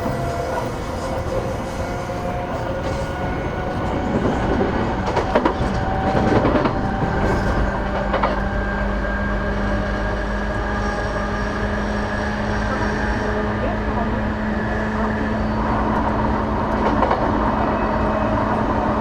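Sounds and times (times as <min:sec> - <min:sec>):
wheels clacking over rail joints: 0:00.0 - 0:10.7
wheels rumbling on rail: 0:00.0 - 0:19.0.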